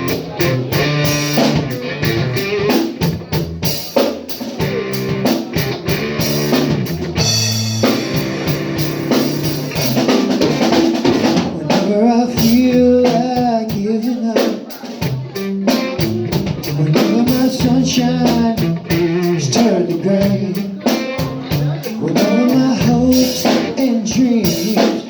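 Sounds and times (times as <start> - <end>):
drum kit beat: 0.0 - 25.0
live band playing: 0.0 - 25.0.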